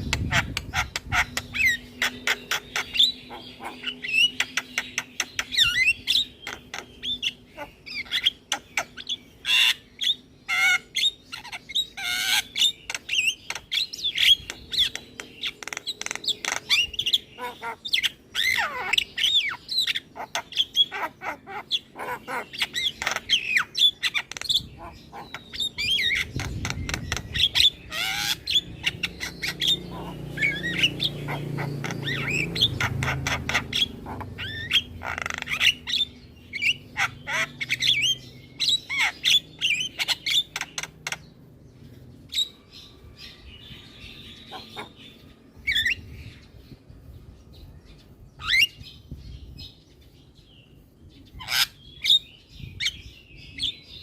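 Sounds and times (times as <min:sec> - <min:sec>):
bird squawking and whistling: 0:00.0 - 0:41.2.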